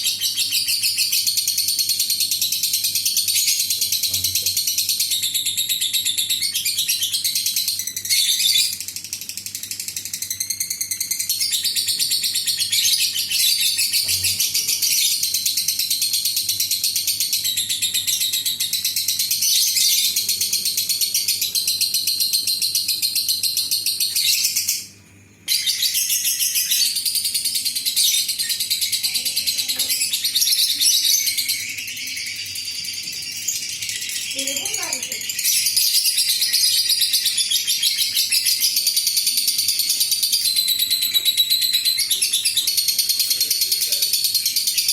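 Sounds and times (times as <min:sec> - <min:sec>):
lovebird chattering trill: 0:10.2 - 0:24.9, 0:25.5 - 0:44.9.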